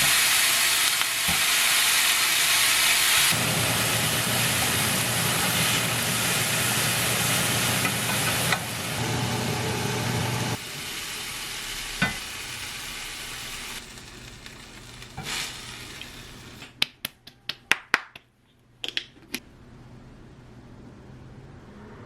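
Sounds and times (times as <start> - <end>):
food sizzling in a frying pan: 0.0 - 16.6.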